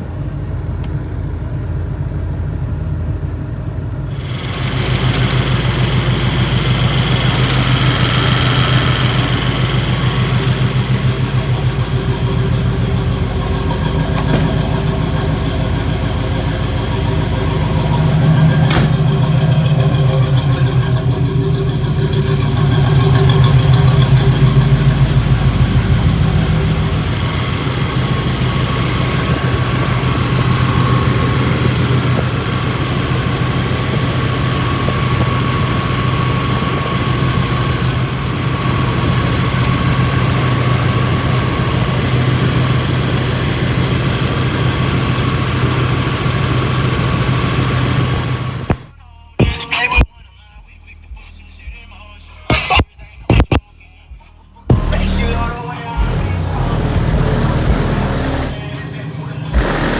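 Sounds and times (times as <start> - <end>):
car engine idling: 0.0 - 49.0, 54.6 - 59.9
sharp click: 52.5 - 53.6.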